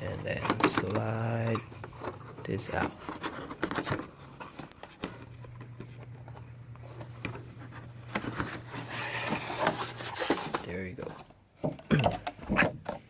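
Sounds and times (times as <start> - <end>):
low steady hum: 0.0 - 13.0
cardboard box rustling and tapping: 0.1 - 6.4.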